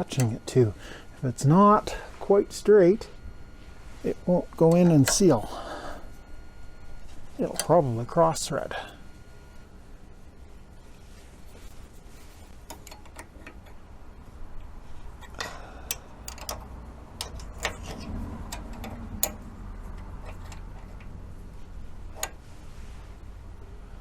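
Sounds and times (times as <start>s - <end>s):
wrench clicking on metal fittings: 15.2s - 21.1s.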